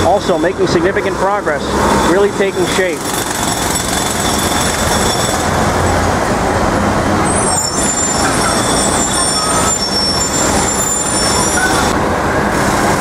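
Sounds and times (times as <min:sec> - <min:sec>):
heavy street traffic: 0:00.0 - 0:13.0
thin high whine: 0:03.6 - 0:13.0.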